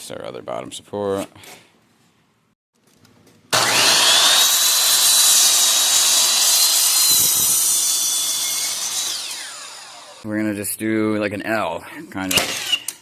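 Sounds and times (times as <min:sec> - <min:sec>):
electric power tool whining: 0:03.6 - 0:10.2, 0:12.4 - 0:13.0.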